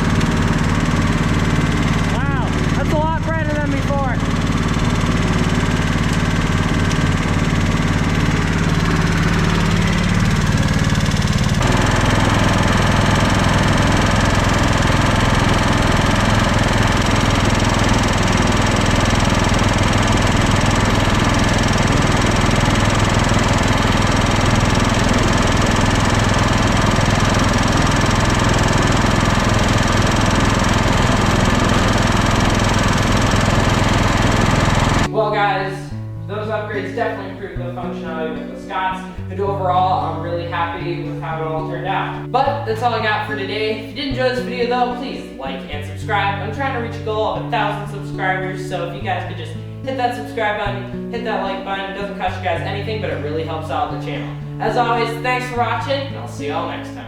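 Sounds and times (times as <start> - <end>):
lawn tractor engine running: 0.0 - 57.0.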